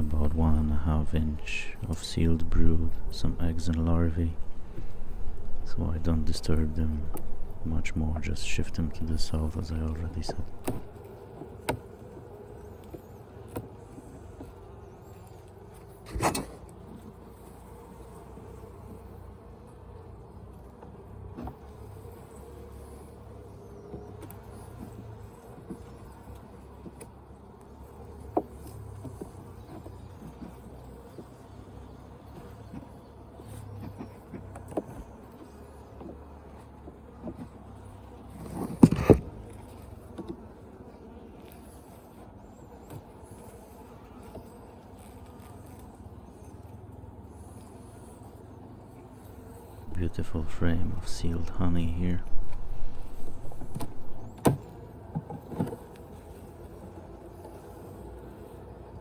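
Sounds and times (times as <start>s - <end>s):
hive equipment knocks and scrapes: 0.0s - 11.6s, 15.8s - 16.6s, 38.3s - 40.5s, 49.9s - 56.0s
honeybees buzzing: 0.0s - 59.0s.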